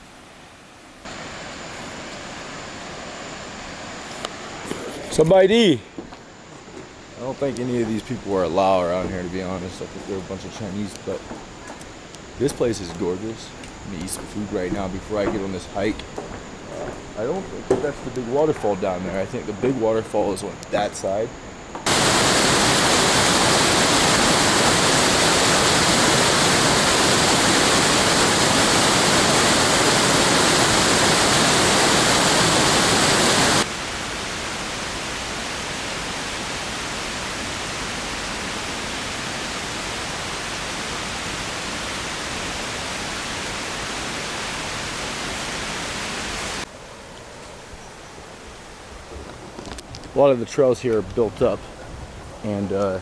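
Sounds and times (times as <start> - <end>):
waterfall rushing: 0.0 - 5.8, 21.9 - 49.0.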